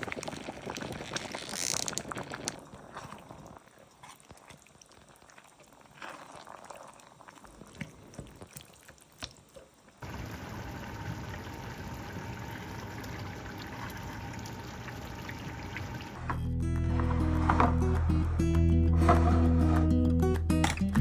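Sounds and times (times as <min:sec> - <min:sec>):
water rushing: 0:10.0 - 0:16.3
kitchen clicks and handling: 0:16.2 - 0:18.4.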